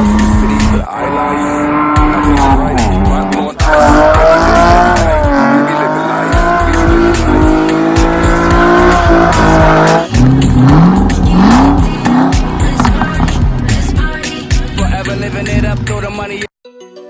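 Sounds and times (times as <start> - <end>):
car tyres squealing: 0.0 - 13.4.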